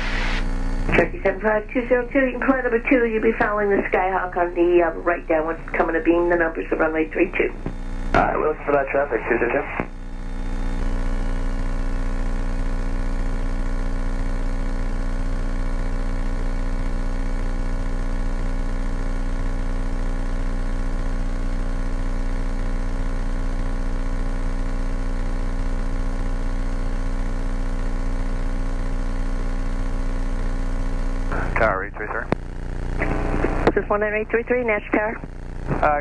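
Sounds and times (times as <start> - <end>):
aircraft engine droning through headset: 0.0 - 9.9, 31.3 - 32.4, 33.0 - 36.0.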